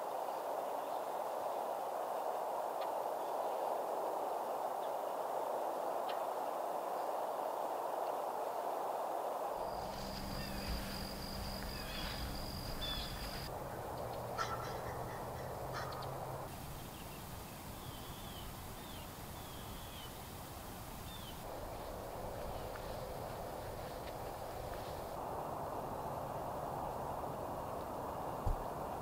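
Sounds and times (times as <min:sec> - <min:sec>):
downward-slurred bird calls: 0:09.6 - 0:17.1
wild birds chirping: 0:09.6 - 0:25.2
low background hum: 0:09.6 - 0:29.0.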